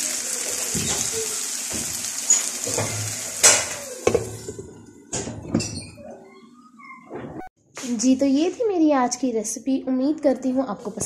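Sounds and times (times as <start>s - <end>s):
meat sizzling in a pan: 0.0s - 4.6s
glass lid knocking on pan: 2.7s - 4.7s.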